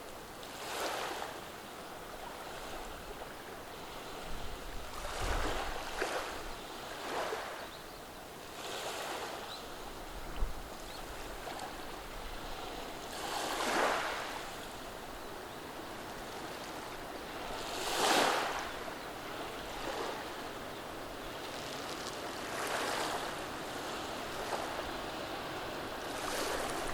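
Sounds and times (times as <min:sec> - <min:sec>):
waves washing over cobbles: 0:12.5 - 0:14.5, 0:16.4 - 0:20.5, 0:21.1 - 0:26.9.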